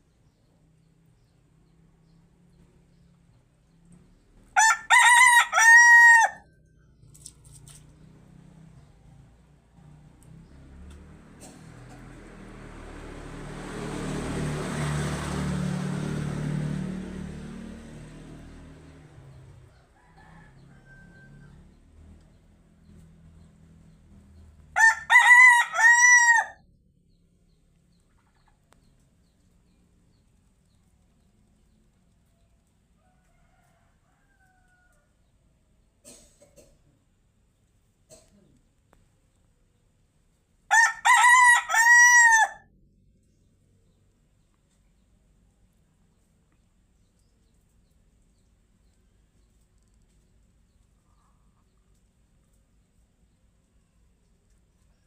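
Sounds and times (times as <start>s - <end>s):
rooster crowing: 4.6s - 6.6s, 19.7s - 21.8s, 24.8s - 26.6s, 40.7s - 42.7s.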